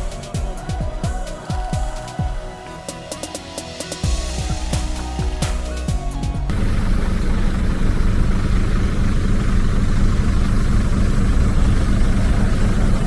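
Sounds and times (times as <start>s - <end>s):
music: 0.0s - 7.1s
truck engine idling: 4.2s - 13.0s.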